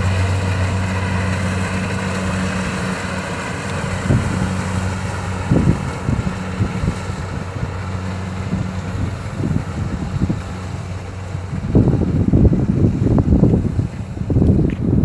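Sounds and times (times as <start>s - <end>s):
diesel engine running under load: 0.0s - 15.0s
wind thumps on microphone: 8.4s - 15.0s.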